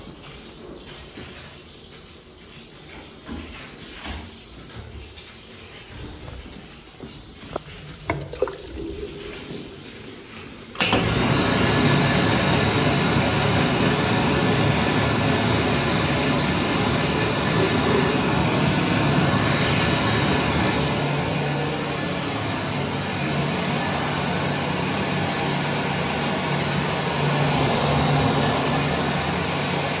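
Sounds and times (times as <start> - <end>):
hand dryer switching on: 8.1 - 29.9
hand dryer fan rush and hum: 8.1 - 30.0.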